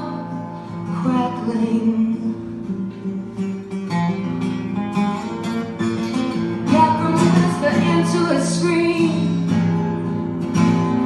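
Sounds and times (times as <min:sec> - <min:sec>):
person singing: 0:00.0 - 0:00.3, 0:00.9 - 0:02.4, 0:06.7 - 0:09.5
acoustic guitar chords: 0:00.0 - 0:11.0.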